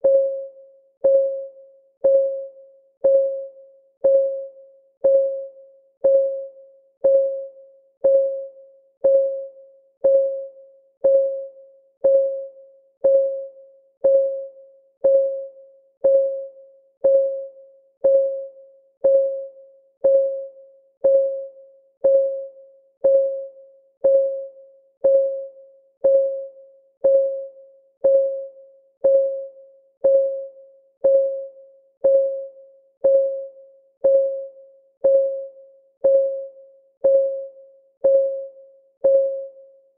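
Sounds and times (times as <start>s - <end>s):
clock ticking pings: 0.0s - 39.6s.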